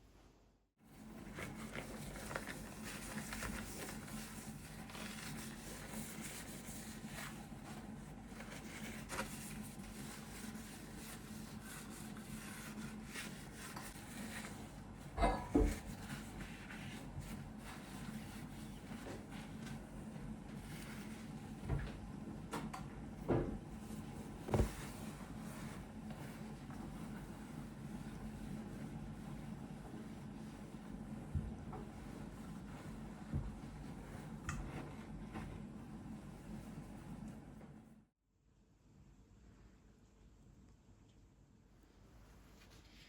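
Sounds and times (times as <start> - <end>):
soft rubbing: 1.1 - 21.5, 23.8 - 37.3.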